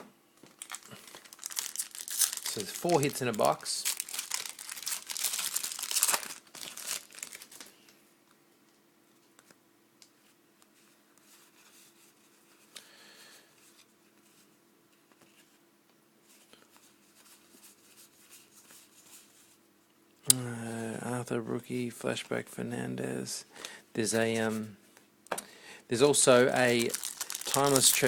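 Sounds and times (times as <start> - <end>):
plastic wrapper crinkling and tearing: 0.5 - 7.9, 26.1 - 28.0.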